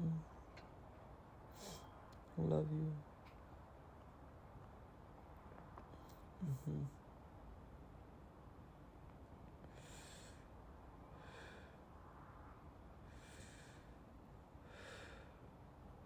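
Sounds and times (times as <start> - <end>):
soft breathing: 1.5 - 2.2, 9.6 - 16.0.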